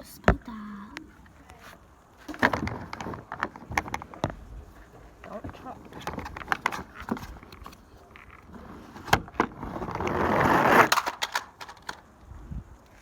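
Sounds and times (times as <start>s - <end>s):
toy truck rolling and scraping: 1.3s - 4.3s, 4.9s - 12.1s.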